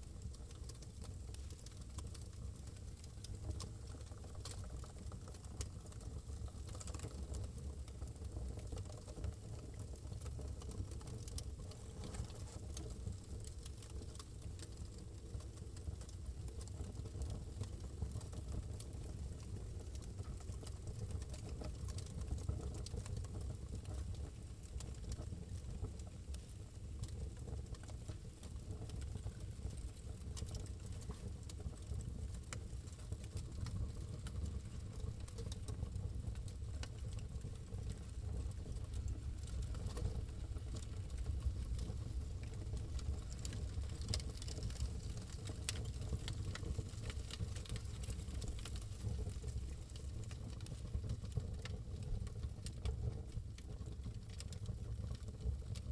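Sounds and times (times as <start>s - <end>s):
fire crackling and popping: 0.0s - 55.9s
fire rumbling: 21.8s - 55.6s.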